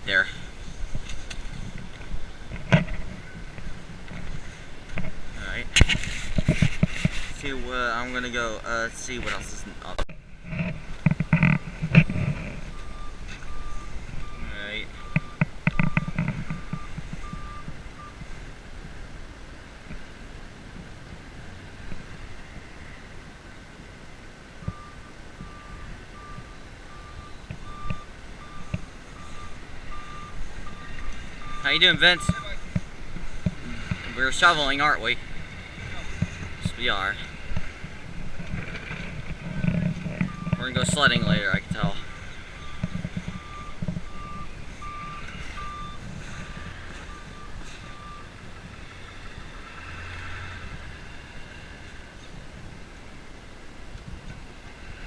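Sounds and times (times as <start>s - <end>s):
low engine rumble: 0.0s - 55.0s
reversing alarm beeping: 11.2s - 18.2s, 24.6s - 32.6s, 40.2s - 48.5s.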